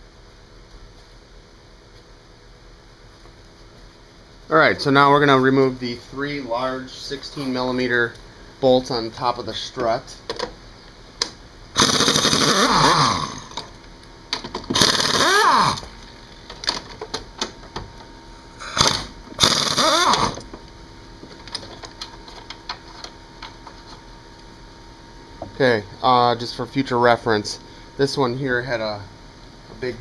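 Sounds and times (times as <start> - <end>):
pneumatic wrench spinning: 11.8 - 13.6, 14.7 - 15.9, 18.8 - 20.4.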